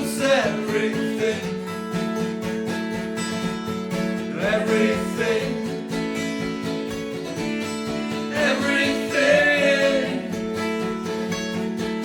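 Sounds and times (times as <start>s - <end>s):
person singing: 0.0s - 1.7s, 4.3s - 5.9s, 7.5s - 10.8s
acoustic guitar strumming: 0.0s - 12.0s.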